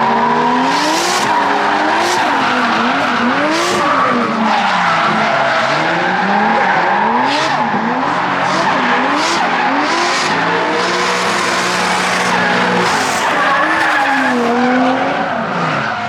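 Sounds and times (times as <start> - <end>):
car engines revving: 0.0 - 16.0
tyre squeal: 10.0 - 14.7.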